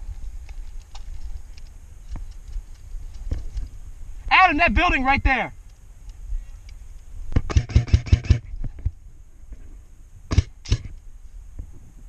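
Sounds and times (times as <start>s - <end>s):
airsoft gun shots: 7.4s - 8.5s, 10.3s - 10.9s.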